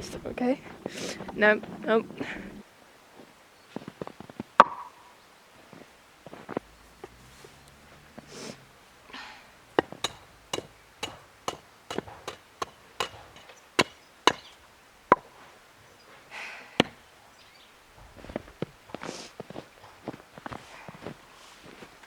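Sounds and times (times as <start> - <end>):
blade chopping wood: 9.6 - 15.4, 16.8 - 17.1.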